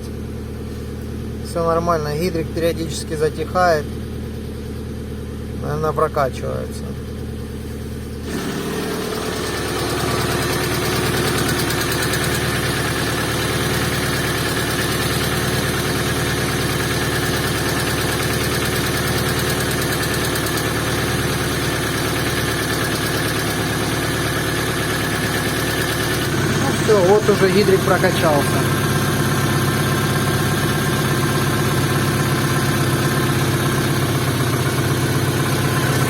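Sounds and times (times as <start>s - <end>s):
car engine idling: 0.0s - 36.0s
hydraulic lifter ticking: 16.5s - 36.0s.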